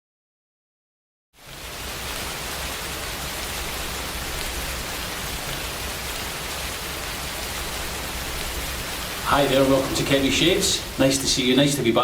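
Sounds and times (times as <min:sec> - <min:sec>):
rain shower hissing: 0:01.4 - 0:12.0.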